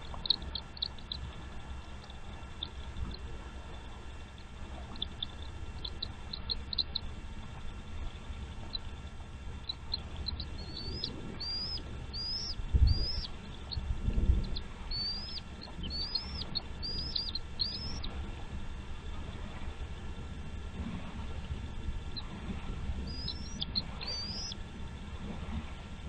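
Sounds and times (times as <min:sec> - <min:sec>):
bird chirping: 0:00.0 - 0:07.2, 0:08.5 - 0:18.2, 0:23.0 - 0:24.6.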